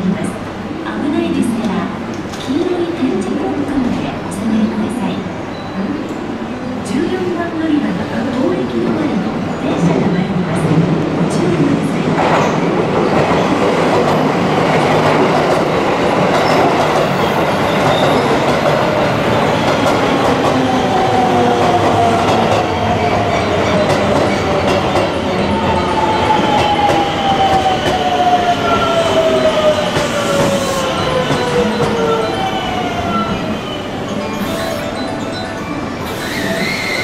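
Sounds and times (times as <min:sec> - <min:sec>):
train wheels running: 0:29.0 - 0:33.5.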